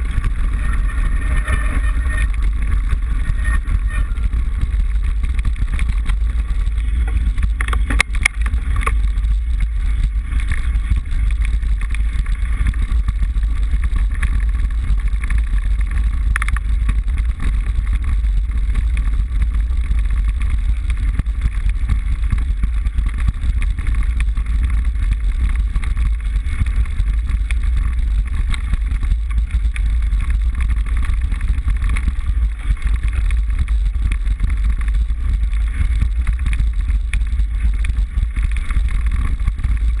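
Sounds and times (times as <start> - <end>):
bike clicks: 0.0 - 40.0
wind rumble on microphone: 0.0 - 40.0.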